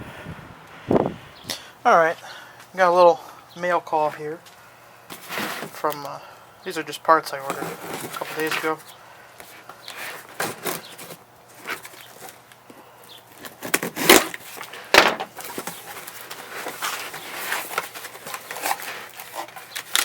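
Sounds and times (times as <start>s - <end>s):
packaging rustling and tearing: 9.9s - 12.5s, 13.3s - 20.0s.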